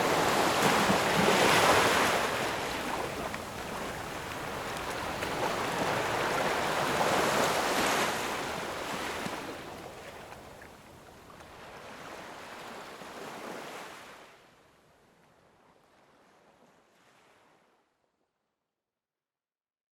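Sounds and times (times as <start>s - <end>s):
ocean waves washing onto shore: 0.0s - 14.3s.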